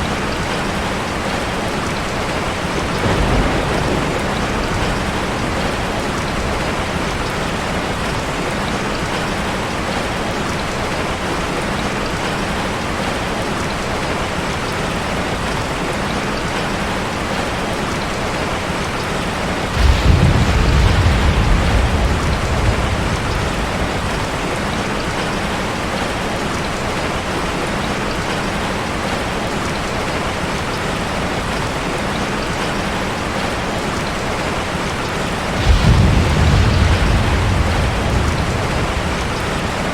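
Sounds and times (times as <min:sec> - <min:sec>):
thunder rumble: 0:00.0 - 0:09.3, 0:19.0 - 0:26.1, 0:34.5 - 0:39.9
heavy rain hitting a car: 0:00.0 - 0:39.9.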